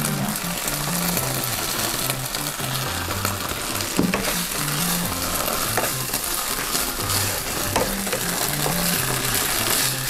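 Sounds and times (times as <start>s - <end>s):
paste sizzling in oil: 0.0s - 10.0s
spatula scraping and knocking a pan: 0.2s - 10.0s.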